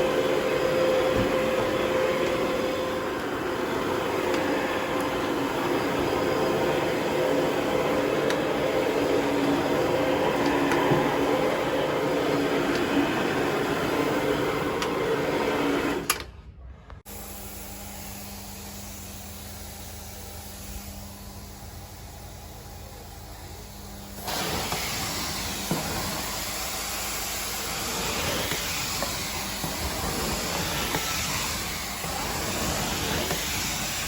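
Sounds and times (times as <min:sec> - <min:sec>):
loud machine drone: 0:00.0 - 0:16.1.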